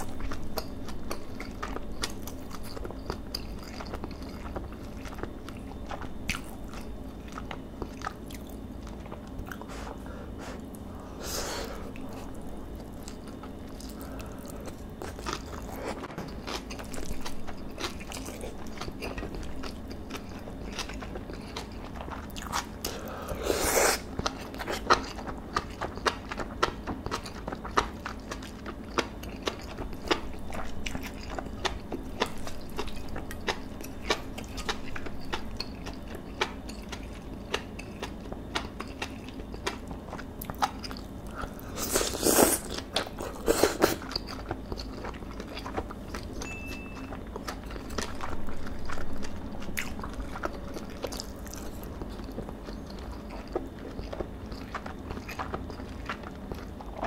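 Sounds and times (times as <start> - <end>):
chewing with wet mouth clicks: 0.0 - 9.7, 11.8 - 23.1, 24.0 - 57.0.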